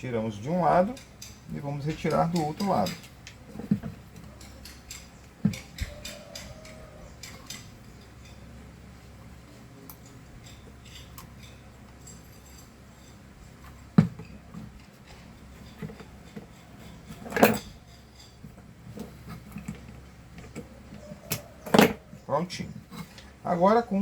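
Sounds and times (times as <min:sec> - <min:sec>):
pliers clicking and knocking: 0:00.9 - 0:07.7.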